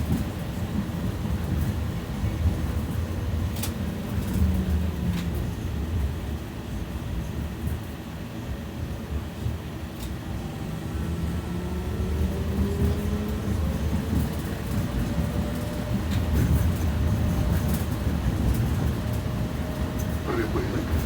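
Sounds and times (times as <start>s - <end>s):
tram rumbling on rails: 0.0s - 21.0s
tram motor whine: 9.3s - 21.0s.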